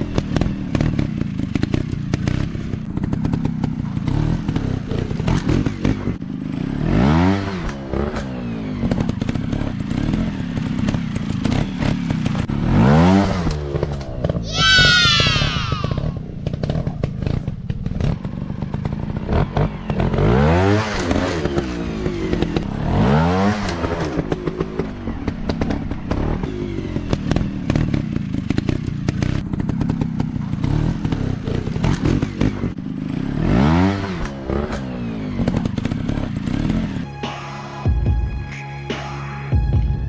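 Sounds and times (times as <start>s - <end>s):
engine clattering and knocking: 0.0s - 6.4s, 7.6s - 12.6s, 16.2s - 20.4s, 23.9s - 33.0s, 34.2s - 37.0s
dirt bike engine revving: 0.0s - 37.4s.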